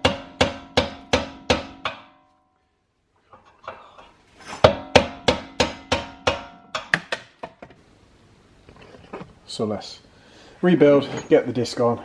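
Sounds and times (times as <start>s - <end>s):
hammer striking metal punch: 0.0s - 2.4s, 4.6s - 7.3s.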